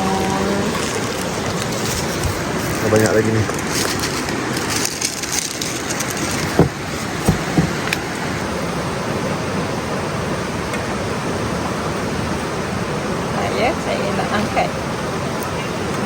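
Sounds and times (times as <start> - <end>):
running water: 0.0 - 16.0
short knocks: 6.4 - 8.1.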